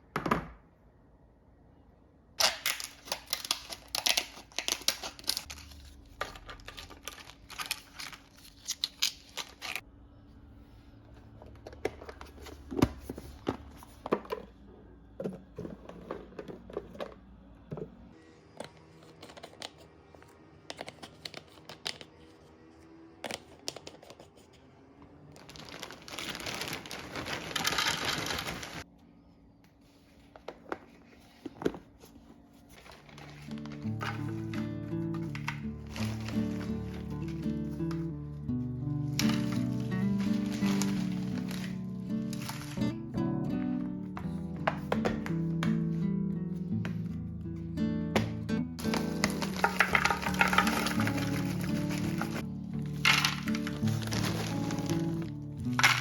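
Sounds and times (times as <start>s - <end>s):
plastic packaging crinkling: 2.4s - 9.8s, 25.4s - 28.9s, 32.6s - 38.1s, 39.0s - 43.0s, 48.8s - 56.0s
containers clicking and knocking: 11.4s - 17.9s, 48.8s - 56.0s.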